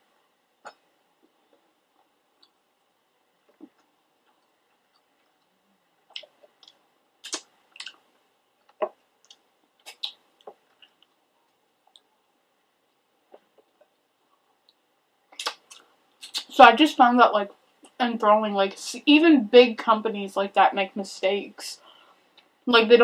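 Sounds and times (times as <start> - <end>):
chewing with wet mouth clicks: 6.1 - 8.0.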